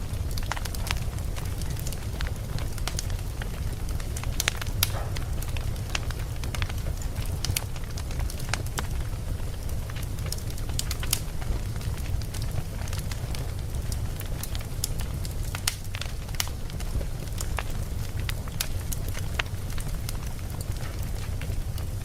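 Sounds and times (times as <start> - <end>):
campfire crackling and popping: 0.0 - 22.0.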